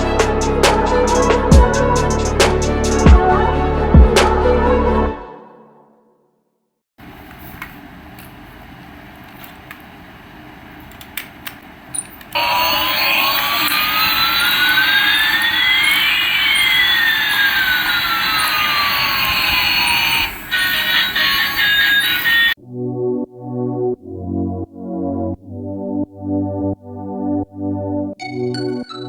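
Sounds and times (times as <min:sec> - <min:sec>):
clicks: 0:10.8 - 0:14.6
toy jet engine sound effect: 0:12.4 - 0:22.6.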